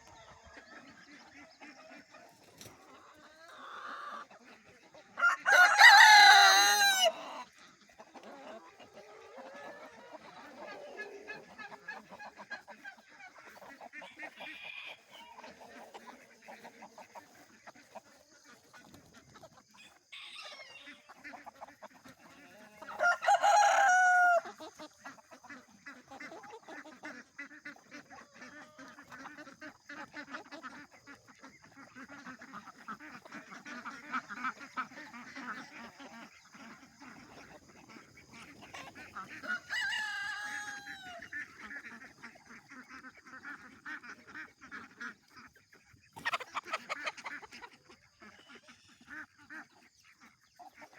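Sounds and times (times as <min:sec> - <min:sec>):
chickens clucking: 0:00.0 - 0:50.9
rooster crowing: 0:05.2 - 0:07.4, 0:22.9 - 0:24.6, 0:39.4 - 0:41.3.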